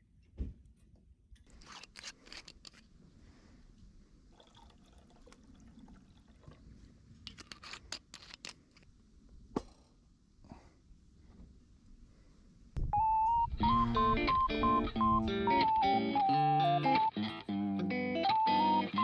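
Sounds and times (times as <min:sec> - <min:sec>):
objects being handled: 0:00.2 - 0:03.0, 0:06.8 - 0:08.9.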